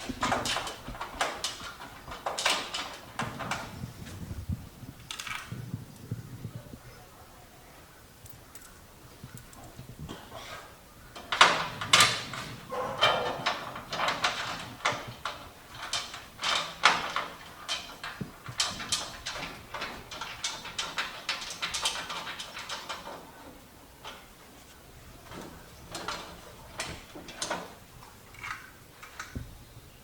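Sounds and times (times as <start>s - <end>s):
body panel parts knocking and scraping: 0.0s - 4.4s, 11.2s - 29.5s.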